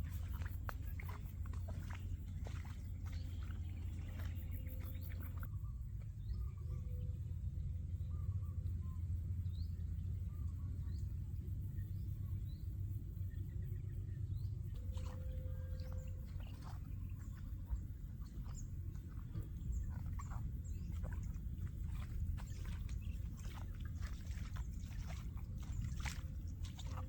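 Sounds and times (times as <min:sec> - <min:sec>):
small birds chirping: 0:00.0 - 0:07.1, 0:13.3 - 0:27.0
steady low rumble: 0:00.0 - 0:27.0.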